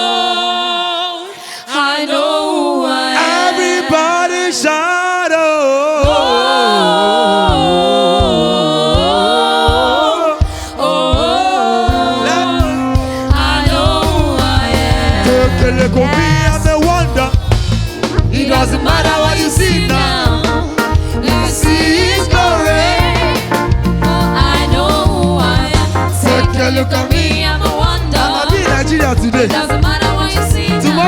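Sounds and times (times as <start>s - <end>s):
bass and drum beat: 6.0s - 6.6s, 7.5s - 31.0s
person singing melismatic vocals: 6.0s - 31.0s.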